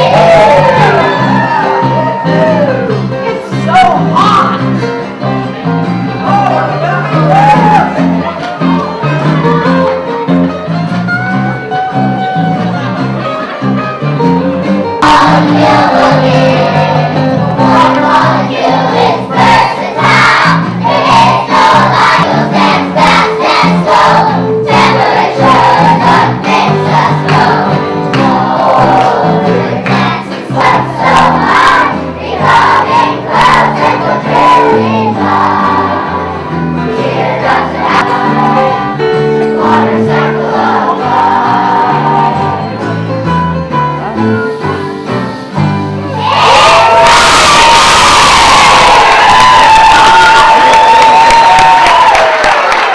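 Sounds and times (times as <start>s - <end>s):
children's choir singing: 0.0s - 2.7s, 15.0s - 43.1s
guitar: 0.0s - 52.2s.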